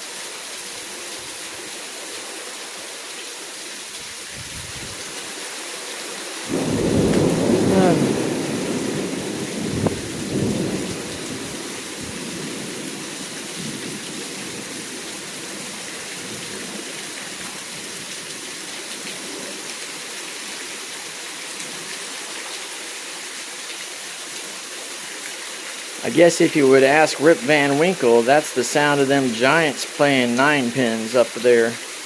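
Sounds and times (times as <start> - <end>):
heavy rain: 0.0 - 32.0
thunder rumbling: 6.5 - 14.7.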